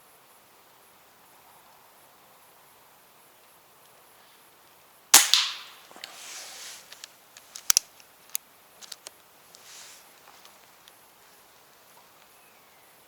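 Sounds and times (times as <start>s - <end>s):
sharp clicks: 5.2s - 5.8s, 7.0s - 7.9s, 8.8s - 9.1s
silenced air rifle shot: 5.2s - 6.5s
hiss: 5.2s - 7.0s, 9.6s - 10.1s.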